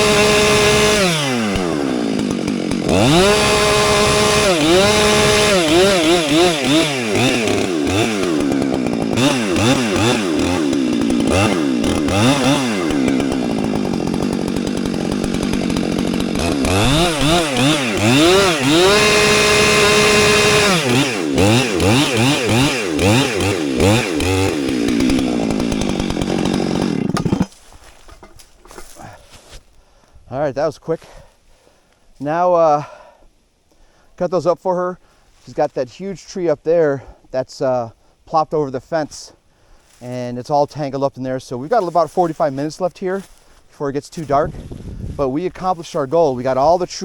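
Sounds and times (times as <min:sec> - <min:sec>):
chainsaw revving and cutting: 0:00.0 - 0:29.3, 0:41.7 - 0:43.5.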